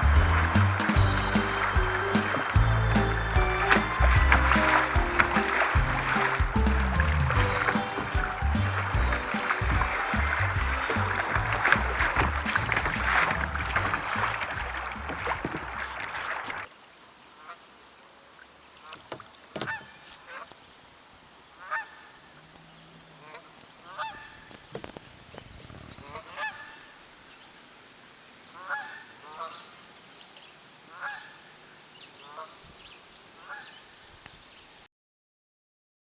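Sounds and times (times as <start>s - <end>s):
music: 0.0s - 15.8s.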